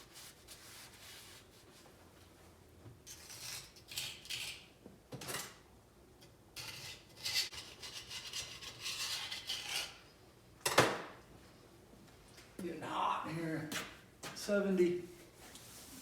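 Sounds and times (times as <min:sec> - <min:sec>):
hand rubbing and scraping: 0:00.0 - 0:02.5, 0:15.0 - 0:16.0.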